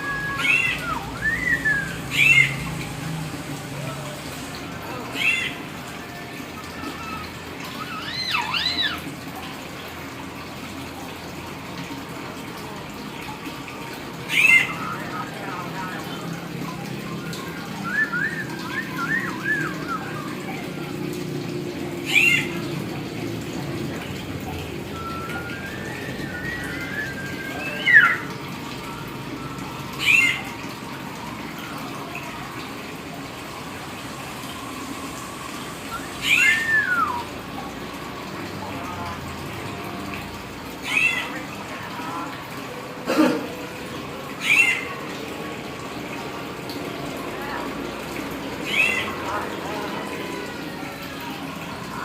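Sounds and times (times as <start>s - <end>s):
myna whistled call: 0.0s - 2.7s, 24.9s - 28.3s, 35.9s - 37.4s.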